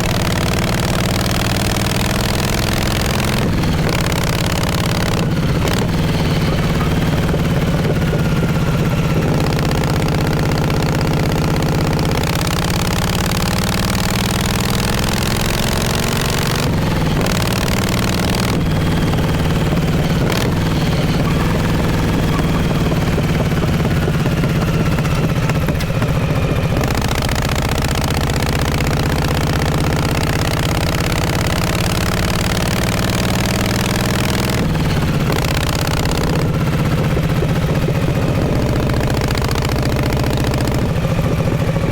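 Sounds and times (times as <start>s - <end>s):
motorcycle engine accelerating: 0.0s - 41.9s.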